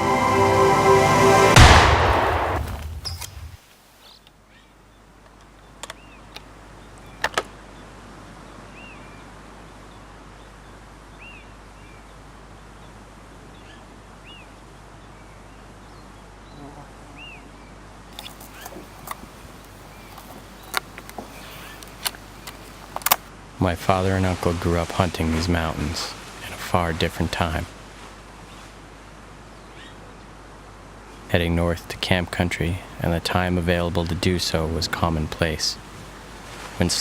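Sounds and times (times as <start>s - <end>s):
music: 0.0s - 2.1s
bird chirping: 18.2s - 23.0s.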